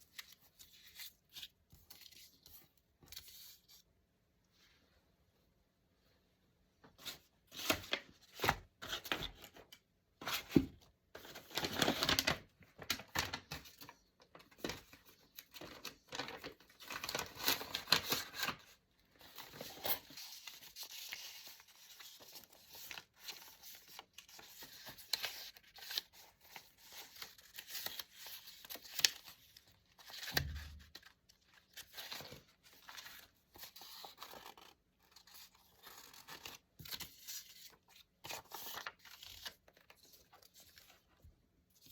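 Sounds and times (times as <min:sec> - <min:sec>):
paper tearing and rustling: 0:11.3 - 0:13.5, 0:15.7 - 0:18.7.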